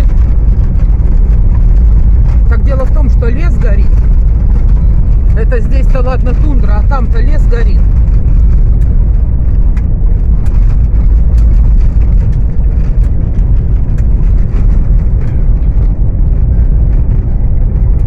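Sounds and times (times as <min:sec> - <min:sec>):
car road rumble from inside: 0:00.0 - 0:18.0.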